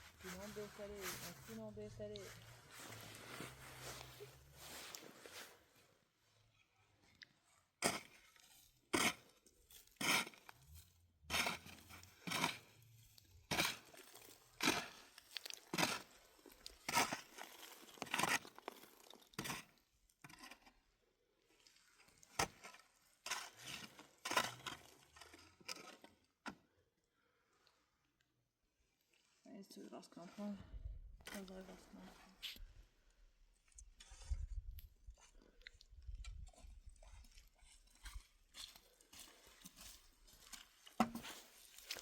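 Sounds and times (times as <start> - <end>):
crunching scraping strokes: 0.0 - 5.8, 7.8 - 20.8, 22.0 - 26.2, 33.7 - 42.0.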